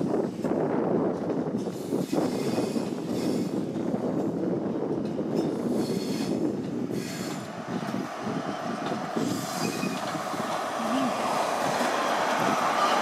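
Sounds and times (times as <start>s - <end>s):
train rumbling past on track: 0.0s - 13.0s
diesel engine: 7.5s - 13.0s.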